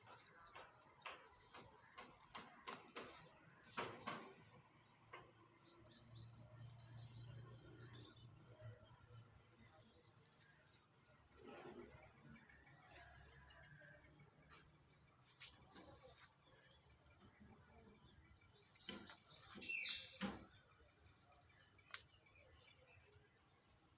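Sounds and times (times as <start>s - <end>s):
bird chirping and trilling: 18.6s - 20.6s.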